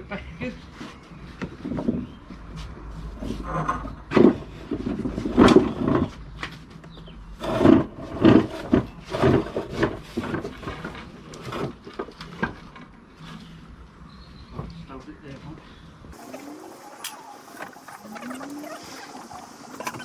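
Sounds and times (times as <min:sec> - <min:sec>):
wooden knocks and scrapes: 0:00.8 - 0:13.5.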